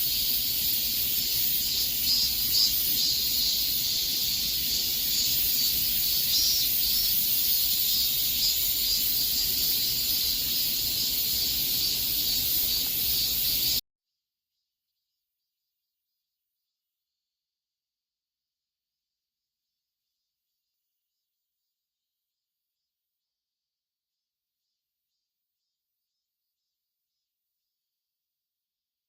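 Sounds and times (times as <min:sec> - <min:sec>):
cicadas buzzing: 0:00.0 - 0:13.8.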